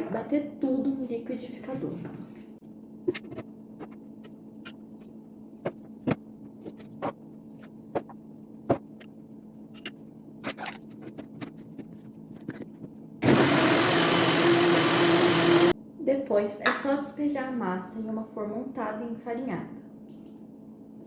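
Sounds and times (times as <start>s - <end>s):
blender running loudly: 13.2s - 15.7s.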